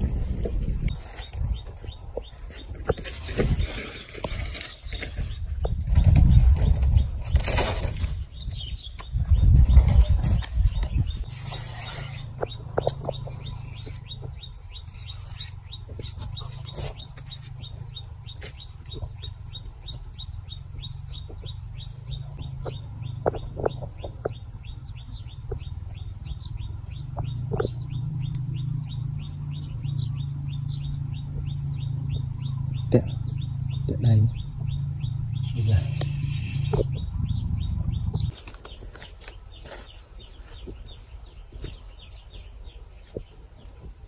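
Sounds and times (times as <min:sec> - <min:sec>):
low steady rumble: 0:00.0 - 0:38.4
small bird high chirps: 0:08.3 - 0:43.3.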